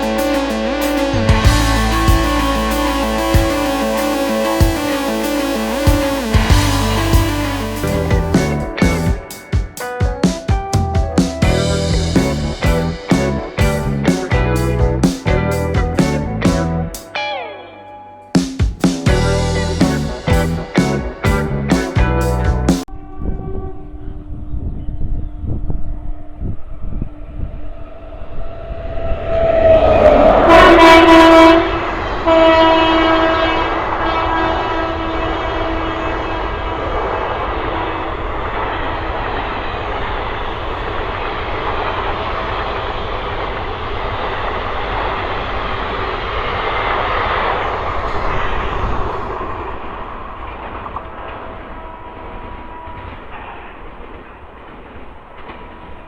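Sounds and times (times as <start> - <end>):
passing train rumble: 0.0 - 17.0, 19.0 - 56.0
train horn: 22.9 - 26.6, 29.4 - 38.5.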